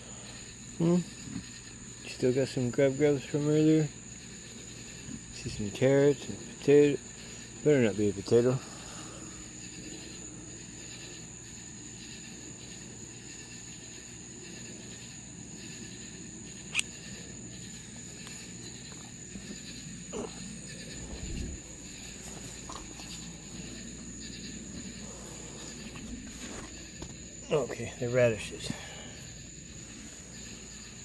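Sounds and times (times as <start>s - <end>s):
insects droning: 0.0s - 31.0s
sharp click: 16.7s - 17.0s.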